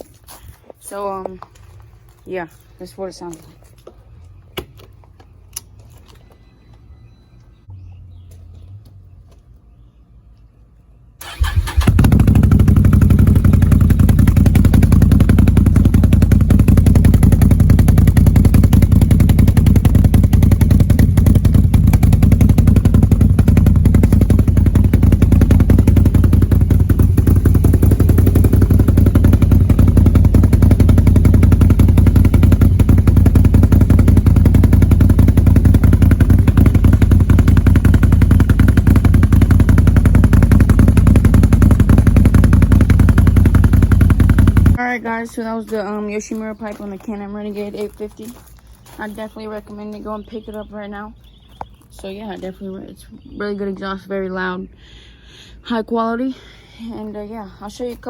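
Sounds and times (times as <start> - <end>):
v-twin engine idling: 11.2 - 45.2.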